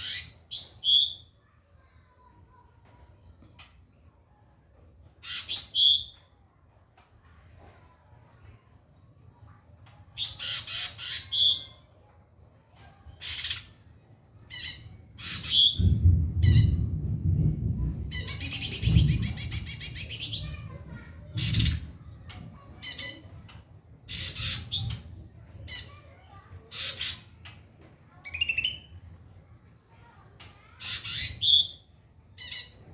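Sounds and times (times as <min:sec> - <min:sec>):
low rumble: 0:15.8 - 0:20.1.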